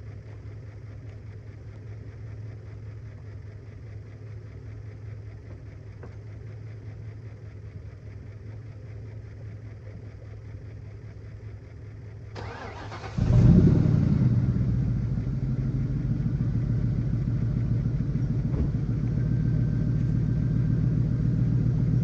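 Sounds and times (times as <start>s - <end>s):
car engine revving and idling: 8.4s - 22.0s
car starter cranking: 12.4s - 13.8s.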